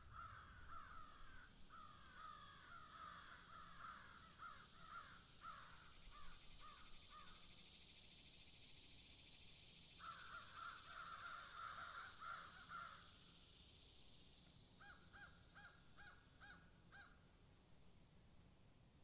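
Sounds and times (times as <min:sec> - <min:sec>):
faint bird calls: 0:00.0 - 0:07.5, 0:09.9 - 0:13.3, 0:14.8 - 0:17.2
faint high hiss: 0:00.0 - 0:19.0.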